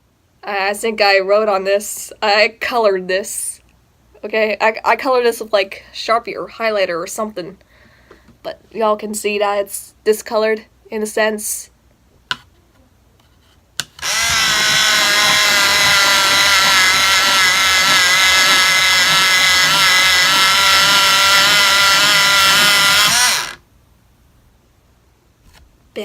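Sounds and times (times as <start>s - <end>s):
electric pencil sharpener whine: 14.0s - 23.6s.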